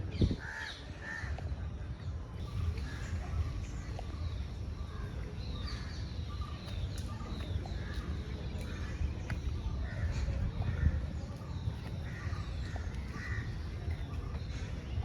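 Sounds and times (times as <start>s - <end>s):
birds chirping: 0.0s - 15.0s
low outdoor rumble: 0.0s - 15.0s.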